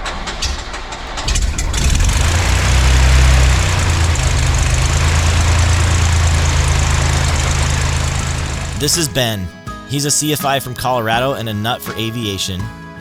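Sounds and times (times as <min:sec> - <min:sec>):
propeller plane engine starting: 0:01.1 - 0:09.5.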